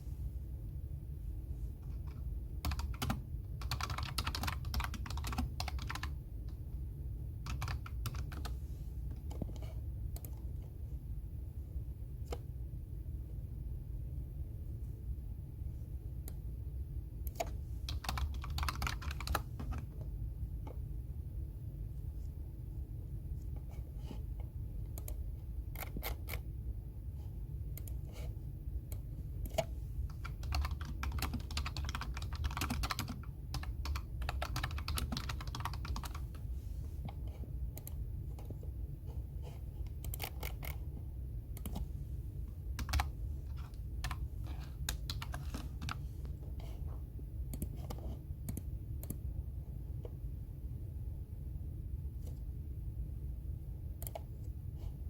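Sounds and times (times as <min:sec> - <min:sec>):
steady low hum: 0:00.0 - 0:55.0
keyboard typing: 0:01.9 - 0:06.6, 0:07.4 - 0:08.6, 0:17.2 - 0:20.1, 0:24.9 - 0:26.5, 0:28.9 - 0:38.6, 0:39.9 - 0:40.9, 0:41.5 - 0:41.9, 0:42.7 - 0:46.6, 0:54.0 - 0:54.3.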